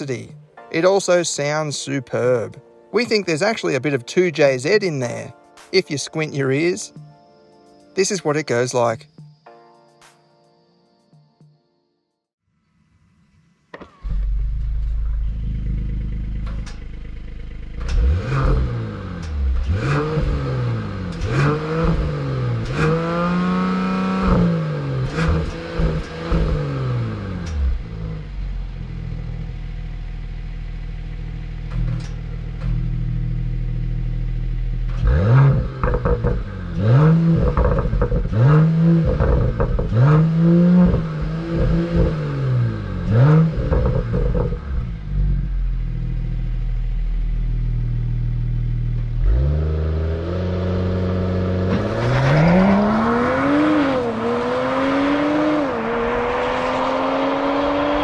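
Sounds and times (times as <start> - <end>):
exhaust crackles: 13.6 - 58.0
car engine revving: 13.8 - 58.0.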